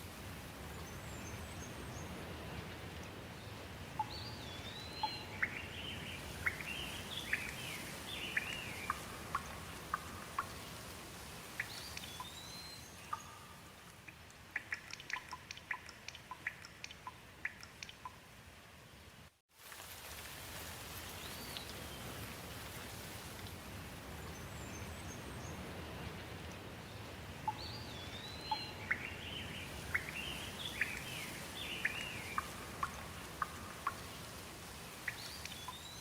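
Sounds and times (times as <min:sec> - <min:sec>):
steady rain: 0:00.0 - 0:36.0
bird chirping: 0:00.8 - 0:10.7, 0:11.6 - 0:13.9, 0:14.6 - 0:18.2, 0:26.9 - 0:34.2, 0:35.1 - 0:36.0
raindrops ticking: 0:08.3 - 0:10.8, 0:13.1 - 0:18.2, 0:31.8 - 0:34.2.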